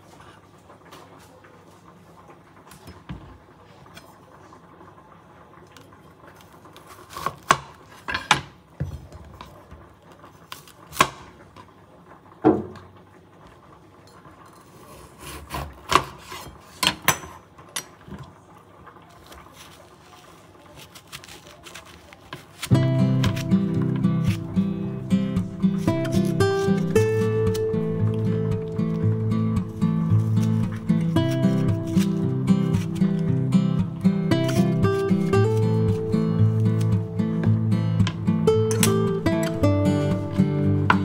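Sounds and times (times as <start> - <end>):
knife striking cutting board: 22.7 - 24.5.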